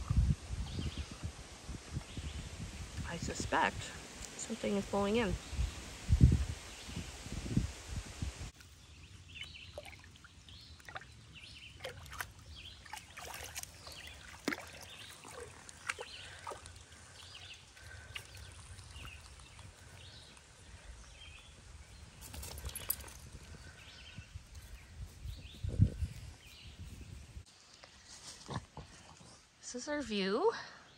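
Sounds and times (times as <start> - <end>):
low wind noise: 0.0 - 9.0, 15.2 - 27.5
dog splashing in water: 11.7 - 16.9.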